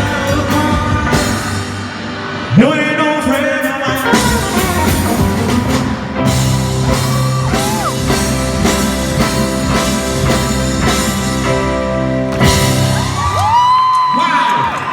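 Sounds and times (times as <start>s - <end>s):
drum kit steady beat: 0.0s - 1.8s, 4.0s - 14.0s.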